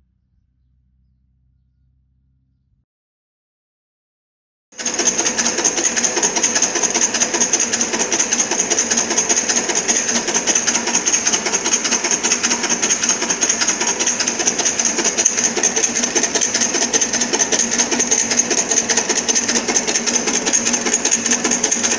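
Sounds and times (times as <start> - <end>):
rapid mechanical clatter: 4.8 - 21.9.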